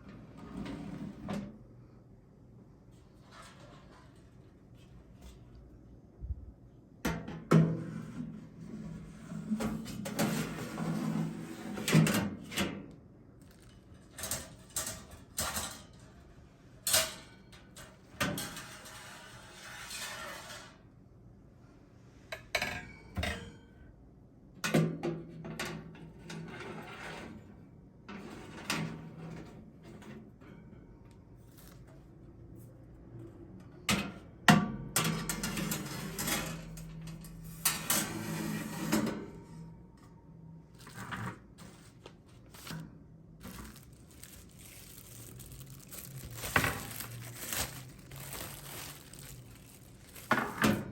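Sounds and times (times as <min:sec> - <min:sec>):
objects clattering and knocking: 0:40.8 - 0:50.9.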